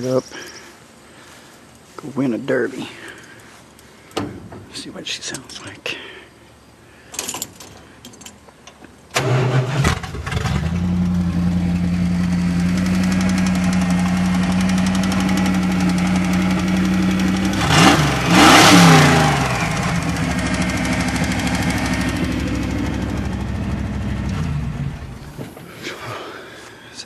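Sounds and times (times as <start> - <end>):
truck engine starting and idling: 9.1 - 25.6
engine revving: 9.2 - 25.3.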